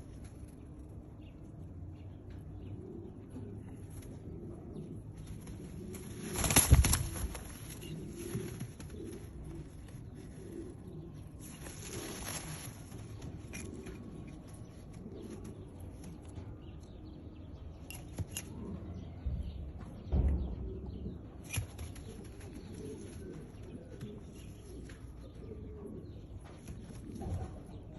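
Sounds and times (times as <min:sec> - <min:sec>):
pigeons cooing: 0:00.0 - 0:27.9
wing flaps: 0:05.2 - 0:10.0, 0:11.4 - 0:14.0.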